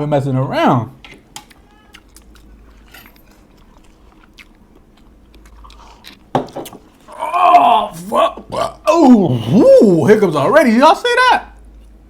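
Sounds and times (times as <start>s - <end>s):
person chewing crunchy food: 1.4s - 8.8s.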